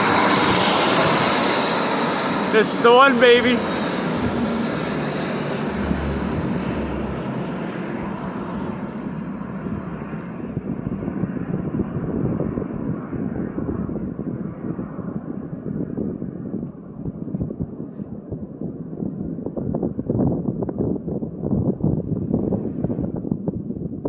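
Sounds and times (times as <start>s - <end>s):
jet engines roaring overhead: 0.0s - 24.0s.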